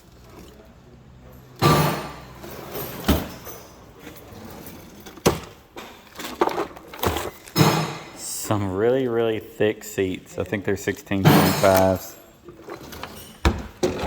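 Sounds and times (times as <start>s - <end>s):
parts and boxes knocking and rattling: 0.2s - 8.2s, 11.1s - 14.0s.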